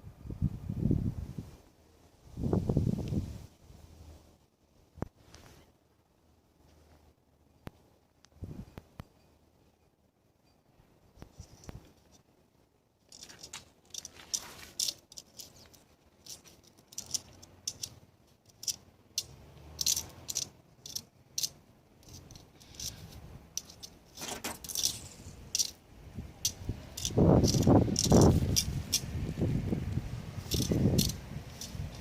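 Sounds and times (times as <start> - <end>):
light clinking and rattling: 13.0 - 25.8, 26.4 - 29.2, 30.4 - 32.0.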